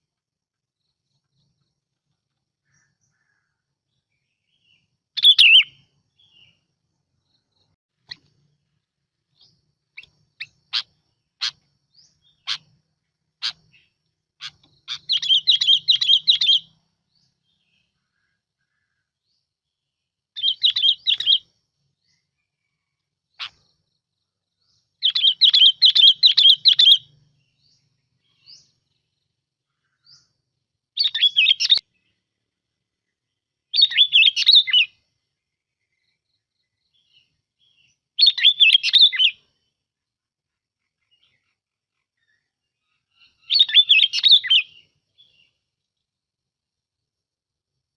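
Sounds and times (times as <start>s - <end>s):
bulbul singing: 2.6s - 19.5s, 20.4s - 22.4s, 23.3s - 32.2s, 33.7s - 35.0s, 35.8s - 39.7s, 43.1s - 45.6s.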